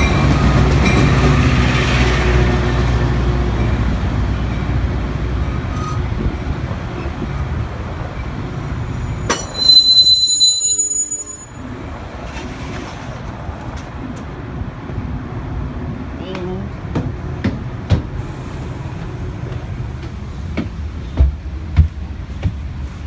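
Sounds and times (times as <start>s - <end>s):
train rumbling on rails: 0.0s - 23.0s
metal-on-metal squeal: 5.7s - 6.1s, 9.0s - 11.6s.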